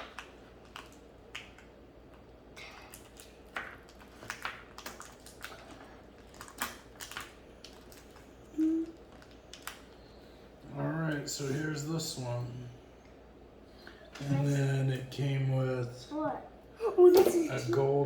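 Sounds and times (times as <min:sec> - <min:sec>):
packaging crinkling: 0:00.0 - 0:10.2.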